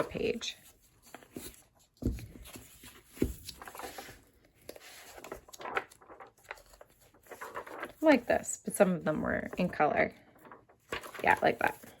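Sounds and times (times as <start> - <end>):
book pages flipping: 0.0 - 12.0
soft thumps of book: 1.0 - 4.1.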